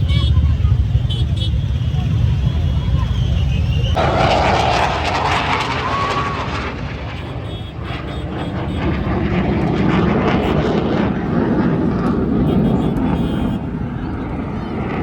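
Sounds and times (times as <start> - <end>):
military aircraft flying past: 0.0 - 15.0.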